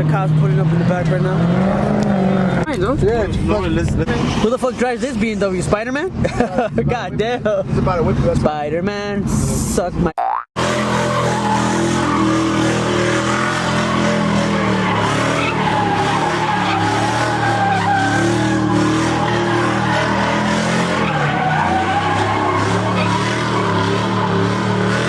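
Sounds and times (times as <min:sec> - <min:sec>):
car engine at high revs: 0:00.0 - 0:08.5, 0:10.6 - 0:25.0
tyres squealing: 0:10.6 - 0:25.0.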